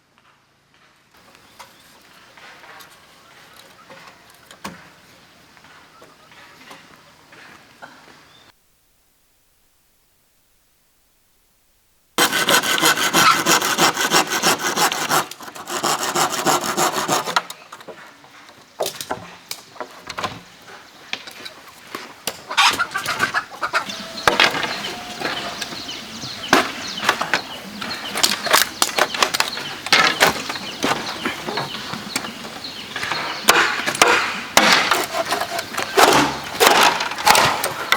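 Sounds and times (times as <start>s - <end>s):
hand saw cutting bamboo: 12.2s - 17.8s, 23.8s - 31.8s, 33.0s - 37.9s
bamboo clicking and knocking: 26.5s - 32.3s, 33.0s - 37.9s.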